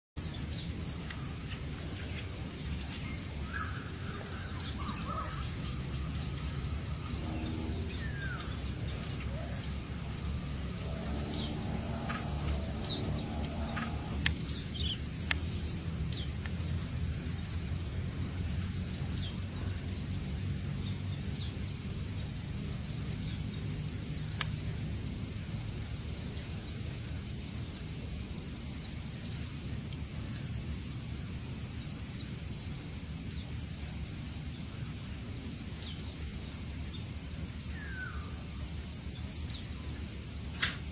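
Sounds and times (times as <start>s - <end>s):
insects trilling: 0.2s - 36.9s
low background rumble: 0.3s - 23.3s
bird chirps: 2.9s - 15.7s.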